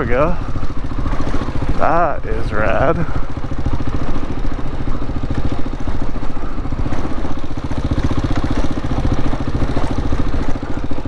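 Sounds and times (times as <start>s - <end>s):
motorcycle engine running at low revs: 0.0s - 11.0s.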